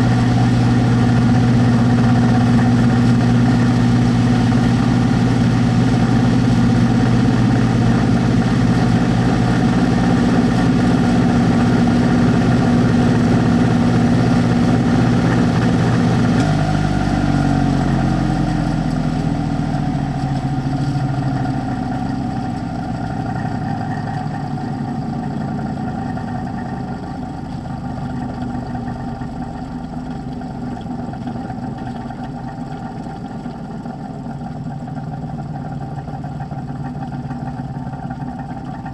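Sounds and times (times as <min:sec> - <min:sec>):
inline fan running and spinning down: 0:00.0 - 0:38.9.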